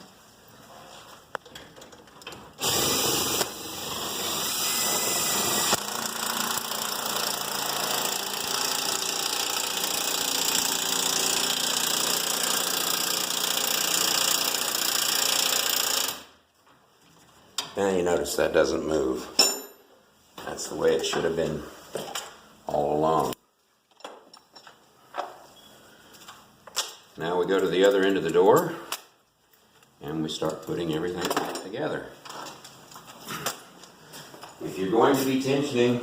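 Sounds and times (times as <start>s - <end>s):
power drill running under load: 2.6s - 16.3s.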